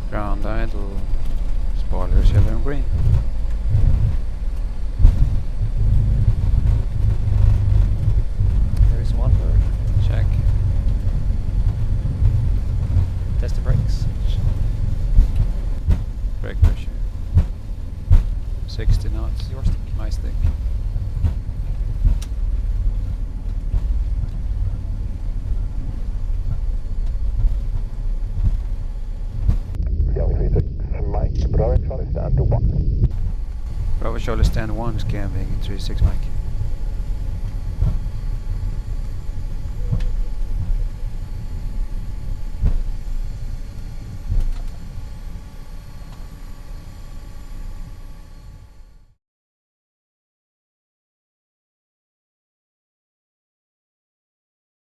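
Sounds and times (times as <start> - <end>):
airframe knocks: 0.0 - 29.8, 33.1 - 45.3
low thumps: 0.0 - 48.8
aircraft cockpit rumble: 0.0 - 49.2.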